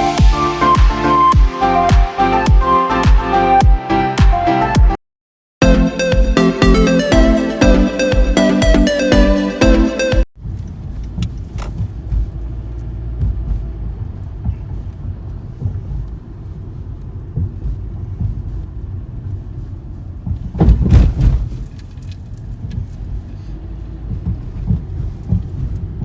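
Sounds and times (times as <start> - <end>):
low outdoor rumble: 10.4 - 26.0.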